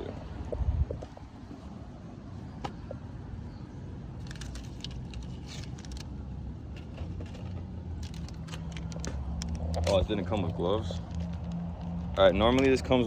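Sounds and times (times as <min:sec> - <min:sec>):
packaging crinkling and rattling: 0:06.8 - 0:12.6.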